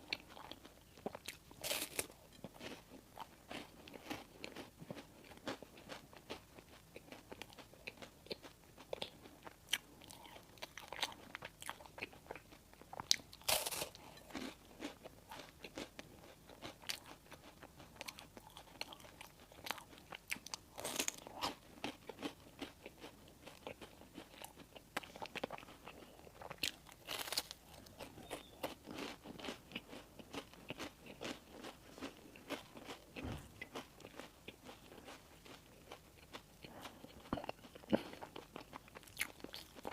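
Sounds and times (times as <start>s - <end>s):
chewing with mouth clicks: 0.0s - 39.9s
crunching bites: 26.4s - 36.3s.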